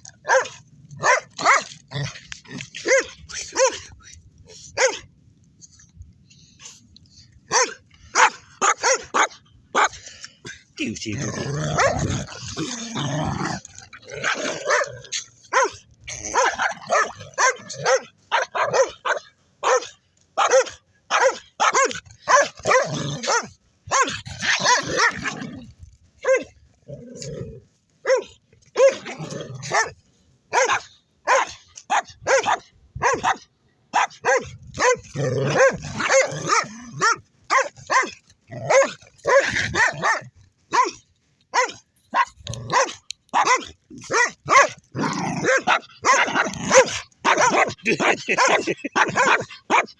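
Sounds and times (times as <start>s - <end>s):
dogs barking in play: 0.0s - 3.9s, 7.4s - 10.0s, 13.6s - 25.5s, 26.2s - 26.6s, 28.0s - 49.9s.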